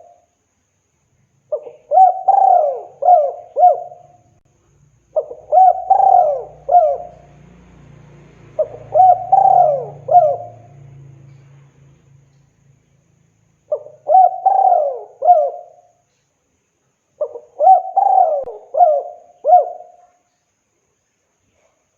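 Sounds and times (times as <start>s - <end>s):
dove cooing: 1.5s - 4.2s, 5.1s - 7.4s, 8.5s - 11.0s, 13.7s - 16.0s, 17.2s - 20.1s.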